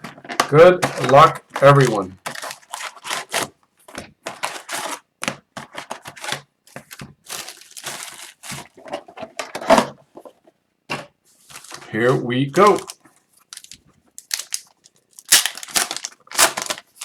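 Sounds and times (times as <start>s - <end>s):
plastic wrapping tearing: 1.0s - 3.5s, 7.2s - 8.8s, 12.6s - 17.0s
crackling rips: 12.6s - 17.0s.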